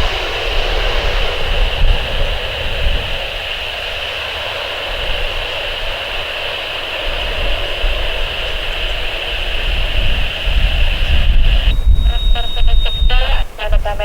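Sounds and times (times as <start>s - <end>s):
jet engines whining: 0.0s - 14.0s
gusty low rumble: 7.1s - 14.0s.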